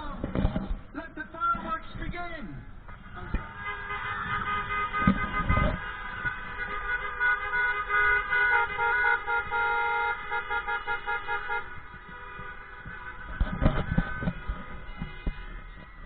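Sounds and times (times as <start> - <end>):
low thuds: 0.0 - 3.6, 4.3 - 6.9, 11.6 - 16.0
car horns honking: 2.6 - 16.0.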